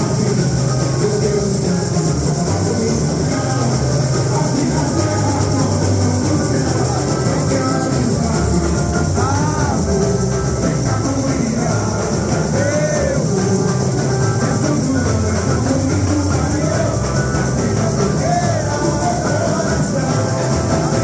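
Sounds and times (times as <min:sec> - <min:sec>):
dense percussion backing: 0:00.0 - 0:21.0
voices singing: 0:00.0 - 0:21.0.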